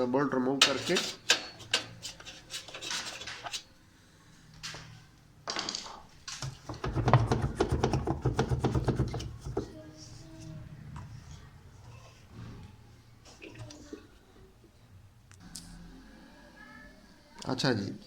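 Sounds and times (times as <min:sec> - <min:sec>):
metal tools clicking and rattling: 0:00.6 - 0:03.7.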